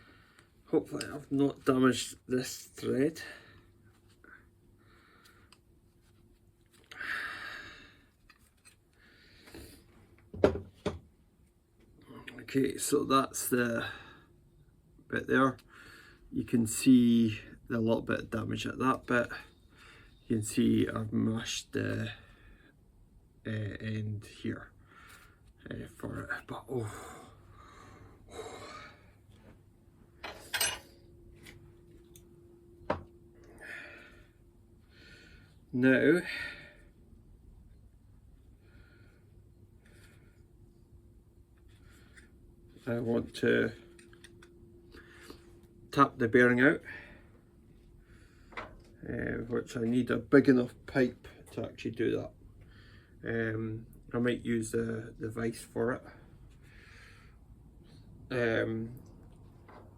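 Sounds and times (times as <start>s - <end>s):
metal parts clinking: 30.2s - 30.9s
faint ringing tone: 30.3s - 34.8s.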